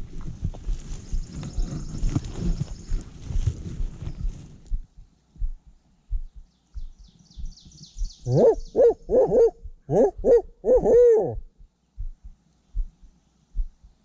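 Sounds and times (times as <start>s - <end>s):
soft low thumps: 0.0s - 14.0s
small bird chirping: 0.7s - 4.6s, 5.6s - 11.4s
owl hooting: 6.8s - 12.2s.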